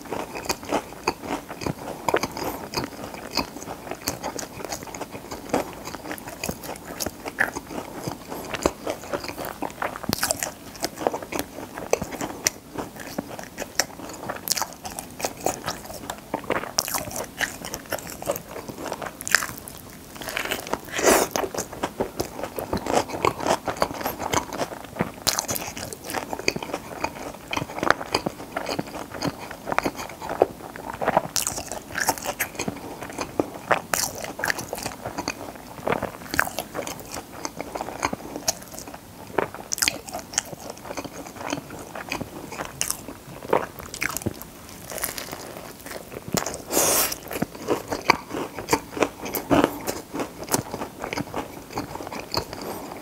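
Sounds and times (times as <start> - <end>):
crunchy biting and chewing: 0.0 - 53.0.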